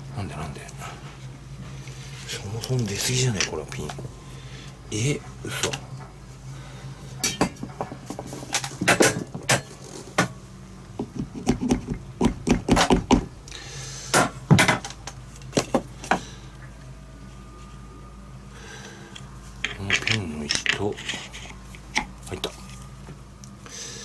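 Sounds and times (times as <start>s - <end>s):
faint steady hum: 0.0s - 24.0s
metal engine parts knocking: 11.0s - 13.4s.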